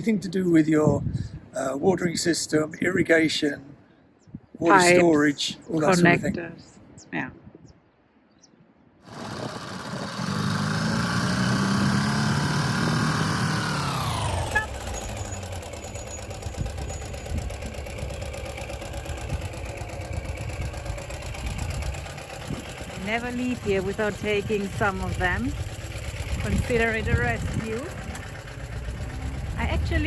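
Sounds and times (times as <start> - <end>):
motorcycle engine running: 9.1 - 30.0.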